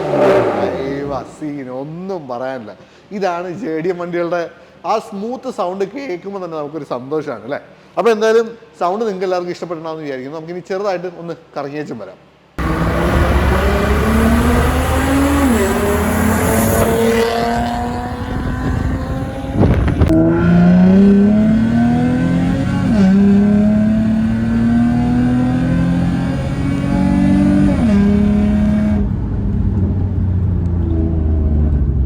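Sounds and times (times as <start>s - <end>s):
car engine accelerating: 0.0s - 1.5s, 12.6s - 32.0s.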